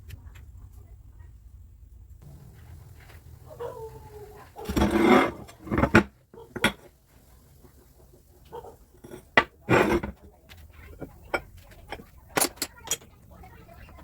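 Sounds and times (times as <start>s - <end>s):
short scraping: 2.2s - 6.0s
metal objects clinking: 9.0s - 13.2s.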